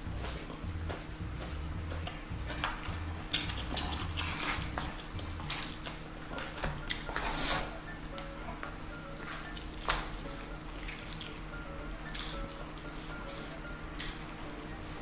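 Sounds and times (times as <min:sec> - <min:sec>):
crunchy chewing: 0:00.0 - 0:11.5.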